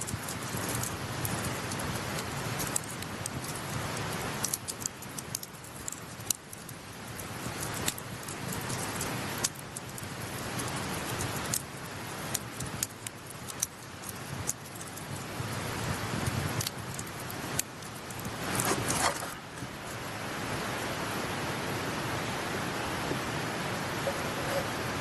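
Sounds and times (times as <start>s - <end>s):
campfire crackling and popping: 0.0s - 20.1s
stream rushing: 17.0s - 25.0s.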